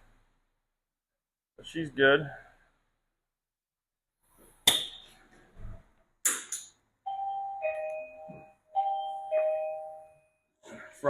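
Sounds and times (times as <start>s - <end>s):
electronic two-tone chime: 7.1s - 10.3s.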